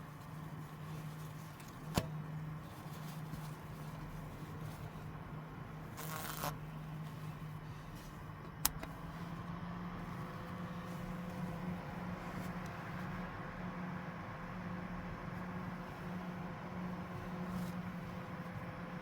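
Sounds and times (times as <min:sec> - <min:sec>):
short rustle: 0:00.0 - 0:05.2
low motor hum: 0:00.0 - 0:19.0.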